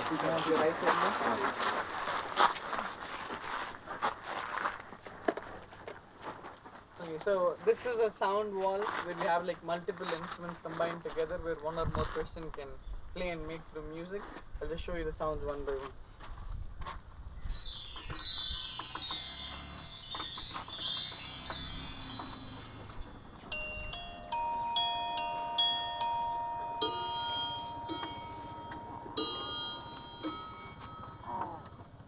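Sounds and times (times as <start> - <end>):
metal chimes ringing: 17.4 - 31.7.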